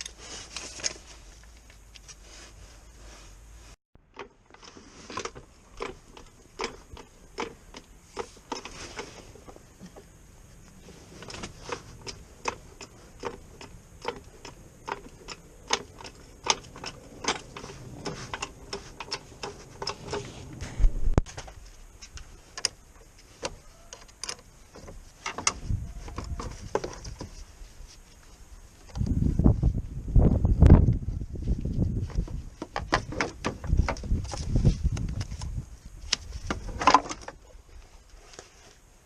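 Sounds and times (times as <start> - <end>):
low thud: 20.6 - 21.3.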